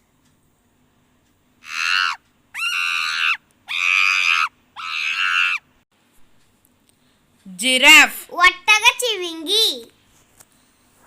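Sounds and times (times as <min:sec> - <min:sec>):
monkey shrieking: 0:01.6 - 0:05.6.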